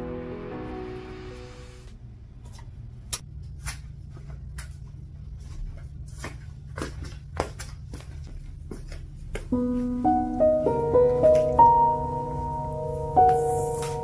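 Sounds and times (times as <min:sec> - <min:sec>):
background music: 0:00.0 - 0:01.9, 0:09.6 - 0:14.0
low steady hum: 0:00.0 - 0:14.0.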